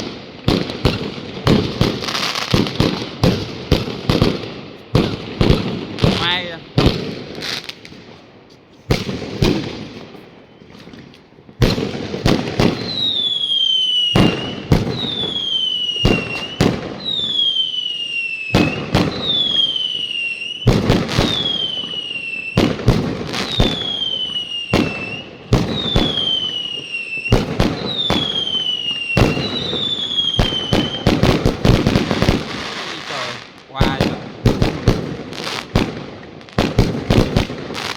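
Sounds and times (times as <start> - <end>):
fireworks bangs: 0.0 - 37.9
falling firework whistle: 12.6 - 33.4.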